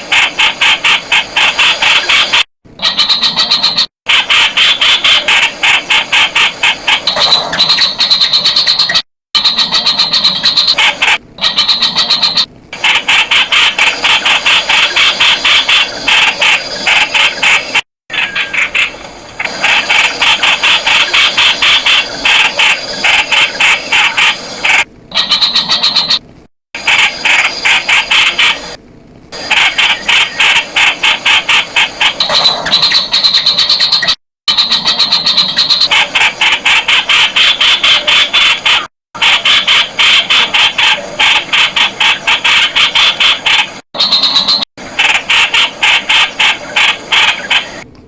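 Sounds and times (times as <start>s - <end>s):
bird calling sharp notes: 6.8s - 12.5s, 31.3s - 36.1s, 39.5s - 44.7s.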